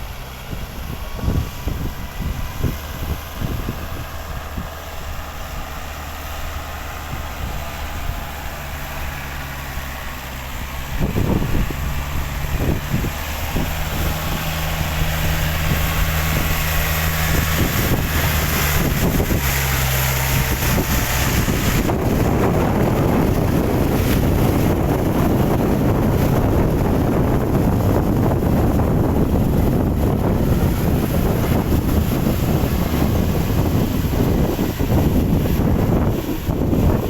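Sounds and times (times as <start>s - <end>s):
loud rough rushing noise: 0.0s - 37.0s
tractor engine running: 0.0s - 37.0s.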